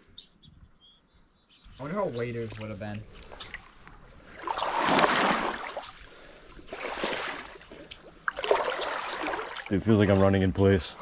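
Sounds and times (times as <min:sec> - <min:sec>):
steps sloshing through water: 0:02.3 - 0:10.3.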